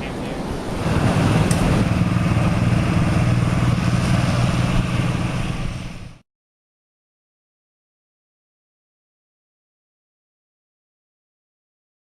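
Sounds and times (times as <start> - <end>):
engine humming: 0.0 - 6.2.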